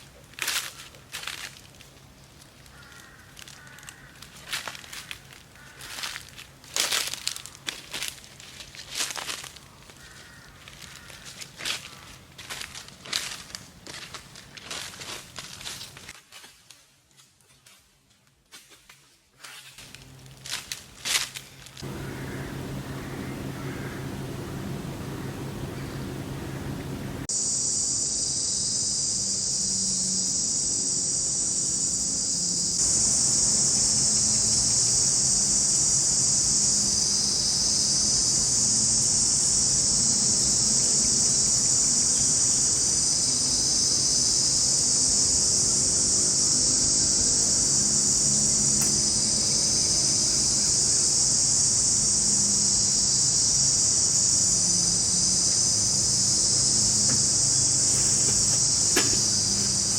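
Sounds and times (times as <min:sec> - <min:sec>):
faint low hum: 0:21.8 - 0:59.9
insects buzzing shrilly: 0:21.8 - 0:59.9.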